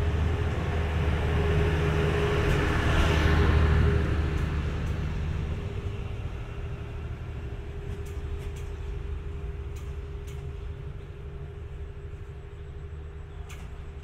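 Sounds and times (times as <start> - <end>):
diesel train engine rumbling: 0.0 - 14.0
faint ticks: 9.6 - 10.7.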